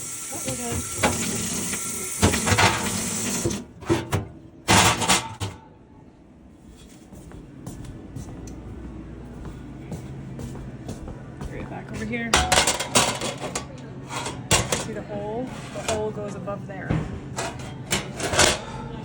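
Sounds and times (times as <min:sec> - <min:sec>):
tap water running in a sink: 0:00.0 - 0:03.7
metal tray clattering: 0:03.8 - 0:05.6, 0:12.3 - 0:16.4, 0:17.3 - 0:18.8.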